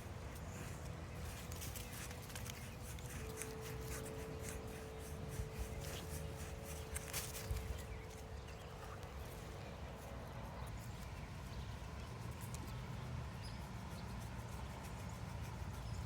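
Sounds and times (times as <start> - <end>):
light clicks and scuffs: 0.0 - 9.3
faint steady hum: 0.0 - 16.0
wind rumbling on microphone: 0.0 - 16.0.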